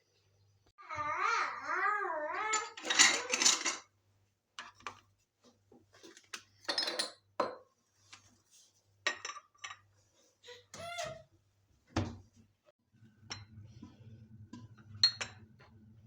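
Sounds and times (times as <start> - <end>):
dishes and cutlery clinking: 2.4 - 3.9, 6.6 - 7.6, 9.1 - 9.9.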